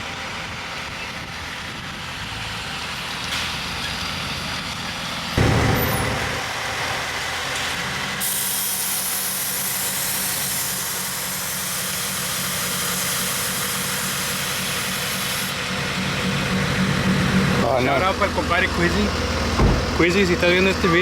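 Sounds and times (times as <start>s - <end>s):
road and wind hiss: 0.0s - 21.0s
truck engine running: 0.0s - 21.0s.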